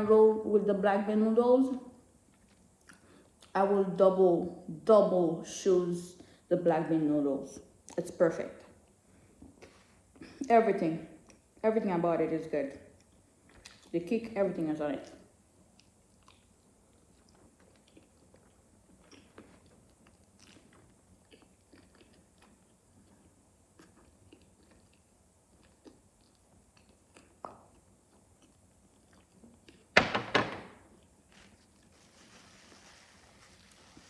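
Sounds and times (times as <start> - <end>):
person chewing: 2.2 - 3.5, 13.0 - 13.9, 15.7 - 29.9.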